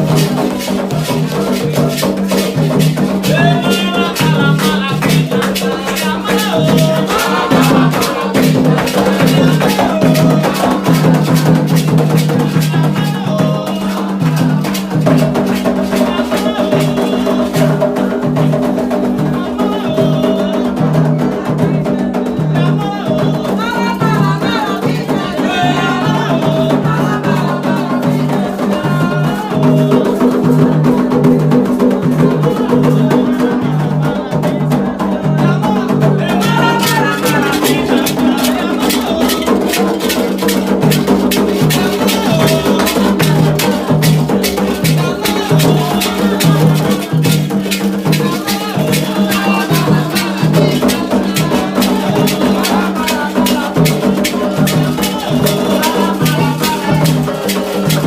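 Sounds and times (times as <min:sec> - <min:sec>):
shaken rattles: 0:00.0 - 0:17.7, 0:36.2 - 0:58.0
hand drums steady rhythm: 0:00.0 - 0:58.0
voices singing a chant: 0:00.0 - 0:58.0.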